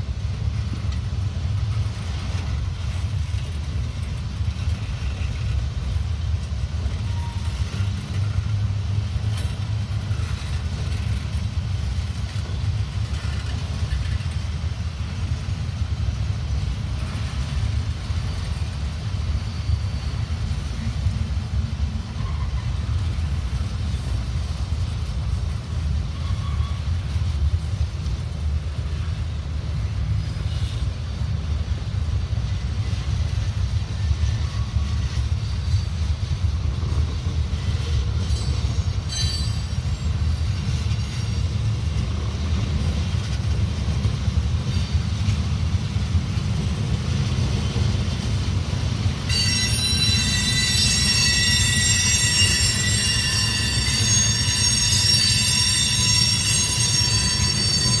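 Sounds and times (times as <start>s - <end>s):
high-pitched wheel squeal: 7.0s - 7.8s, 26.1s - 26.9s, 38.2s - 41.6s, 49.3s - 58.0s.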